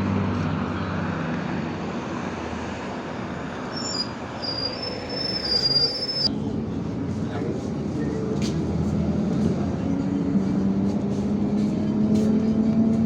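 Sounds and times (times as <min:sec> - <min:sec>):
bus engine running: 0:00.0 - 0:13.0
high-pitched squeal: 0:03.6 - 0:06.3.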